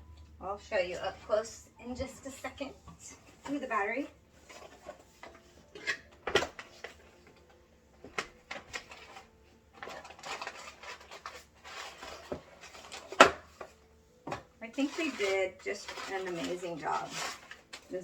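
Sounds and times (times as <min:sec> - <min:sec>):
rustling: 0:00.0 - 0:18.0
plastic parts knocking and clicking: 0:04.6 - 0:09.2, 0:09.8 - 0:14.5.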